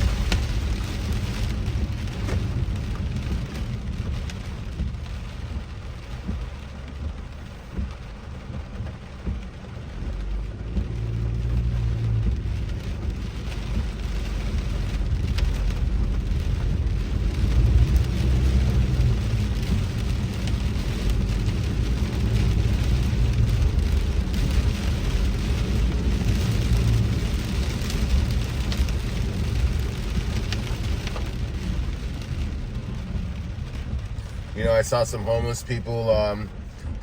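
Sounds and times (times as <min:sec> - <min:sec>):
engine and tyre rumble: 0:00.0 - 0:37.0
rain on a car: 0:00.0 - 0:37.0.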